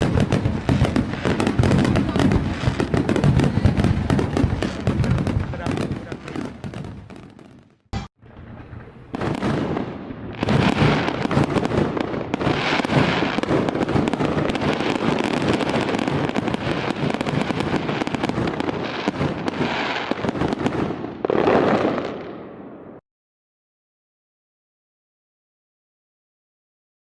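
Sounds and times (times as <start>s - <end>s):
fireworks shell bursts and crackle: 10.4s - 20.7s.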